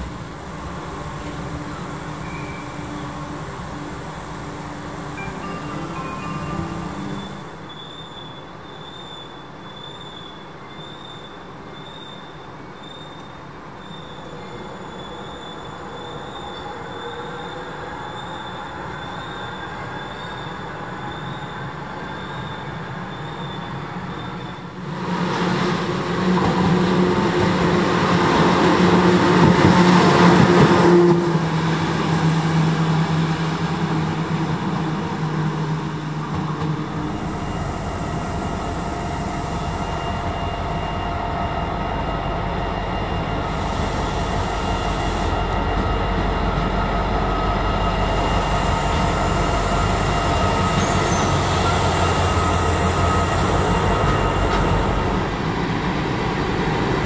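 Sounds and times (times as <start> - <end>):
electric locomotive motor humming: 0.0 - 7.9, 25.8 - 57.0
diesel locomotive engine rumble: 0.0 - 8.0, 13.4 - 57.0
rail noise: 0.0 - 57.0.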